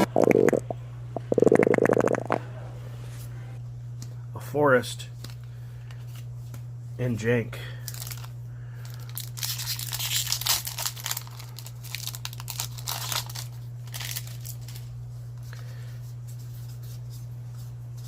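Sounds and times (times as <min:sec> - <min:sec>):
steady low hum: 0:00.0 - 0:18.0
foil wrapper crinkling: 0:07.8 - 0:14.9.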